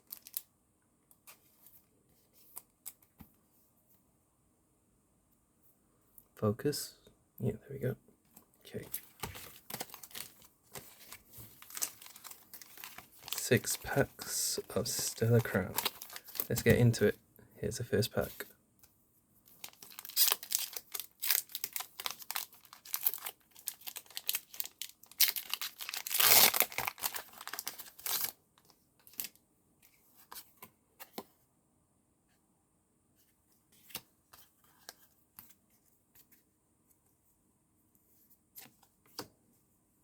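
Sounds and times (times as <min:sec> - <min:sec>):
wrapper crinkling: 0:08.9 - 0:16.7, 0:19.6 - 0:28.4
wrapper ripping: 0:11.0 - 0:13.8, 0:19.6 - 0:28.3.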